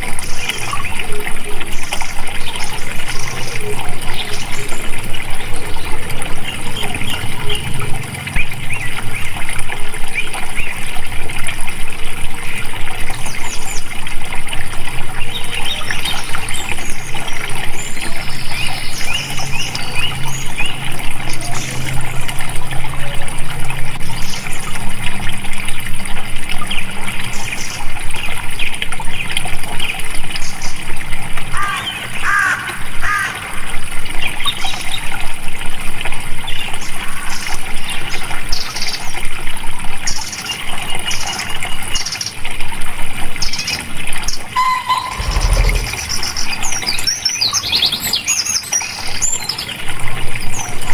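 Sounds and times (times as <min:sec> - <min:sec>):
water trickling over rocks: 0:00.0 - 0:50.9
high bird chirps: 0:44.6 - 0:48.0.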